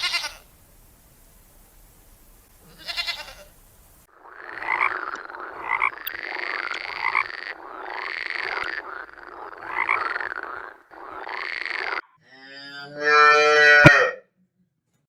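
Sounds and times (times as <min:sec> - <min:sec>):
chorus of animal calls: 0:04.2 - 0:14.2.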